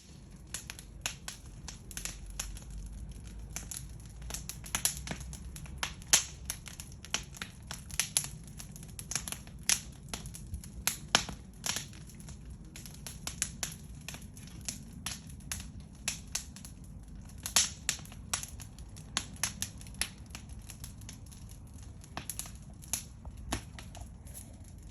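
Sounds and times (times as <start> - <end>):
wood fire crackling: 0.0 - 24.9
low rumble: 18.5 - 24.9.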